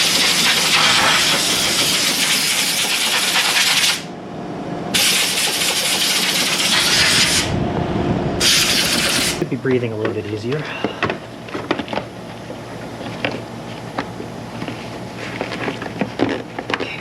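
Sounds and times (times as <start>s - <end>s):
compressed air blow gun hissing: 0.0s - 4.0s.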